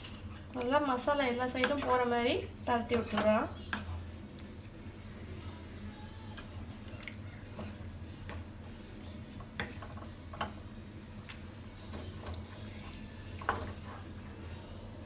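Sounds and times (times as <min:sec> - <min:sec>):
soft wet squishing: 0:00.0 - 0:02.3, 0:02.9 - 0:10.0.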